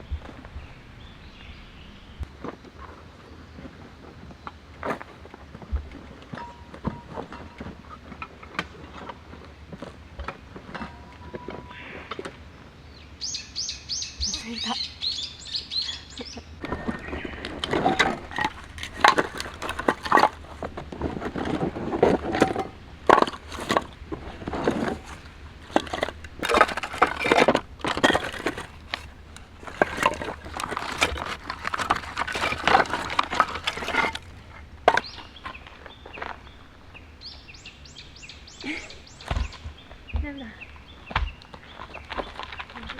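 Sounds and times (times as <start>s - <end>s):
bird chirping: 0.0s - 2.3s, 12.8s - 17.7s, 35.0s - 42.7s.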